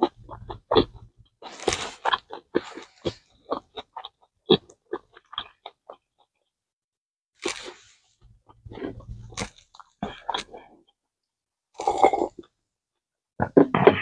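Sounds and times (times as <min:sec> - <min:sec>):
wet chewing and mouth smacks: 0:00.0 - 0:06.4, 0:07.4 - 0:10.9.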